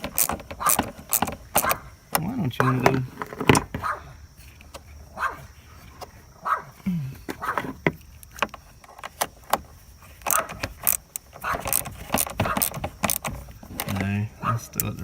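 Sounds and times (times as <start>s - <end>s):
dog barking: 0.6s - 0.8s, 1.6s - 1.9s, 2.6s - 3.0s, 3.7s - 4.2s, 5.1s - 5.5s, 6.4s - 6.8s, 7.4s - 7.7s, 10.3s - 10.6s, 11.4s - 11.7s, 12.4s - 12.7s, 14.4s - 14.8s.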